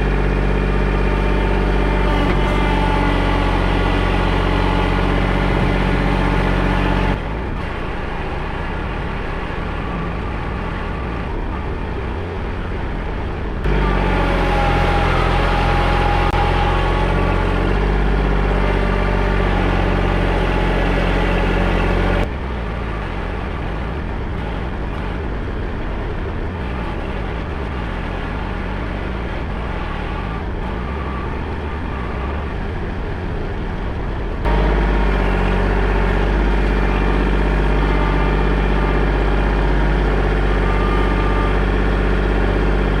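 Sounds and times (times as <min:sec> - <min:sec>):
digging machine engine running: 0:00.0 - 0:43.0.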